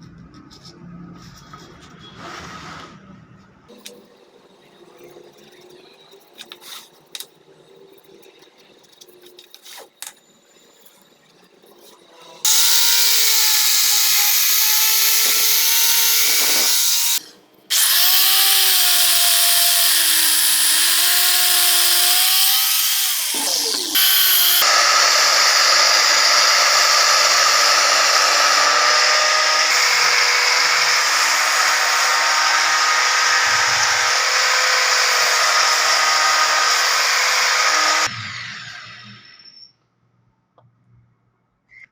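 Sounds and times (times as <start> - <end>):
power tool whining on wood: 12.5 - 39.6.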